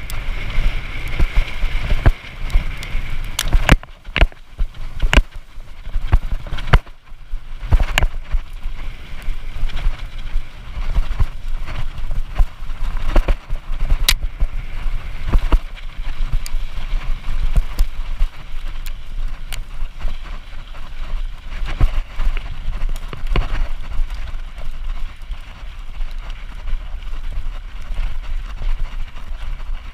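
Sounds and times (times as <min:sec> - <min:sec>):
wind and tyre rumble: 0:00.0 - 0:29.9.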